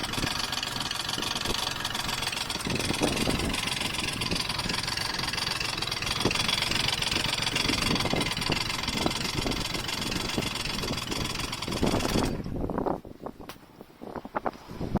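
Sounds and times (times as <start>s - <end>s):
engine knocking: 0.0s - 12.5s
scooter engine idling: 0.0s - 12.7s.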